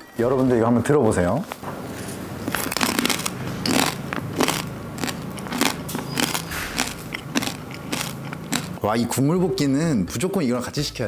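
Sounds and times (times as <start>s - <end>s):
crunchy chewing: 1.9s - 8.8s.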